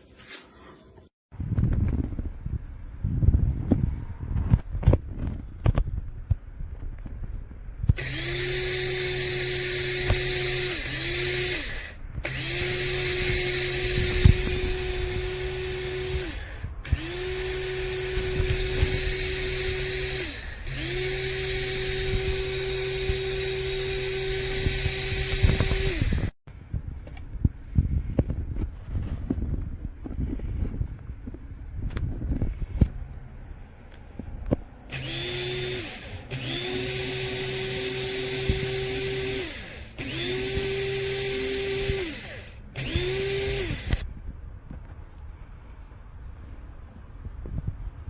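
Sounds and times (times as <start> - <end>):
blade grinder motor spinning: 7.9 - 26.4, 34.9 - 44.1.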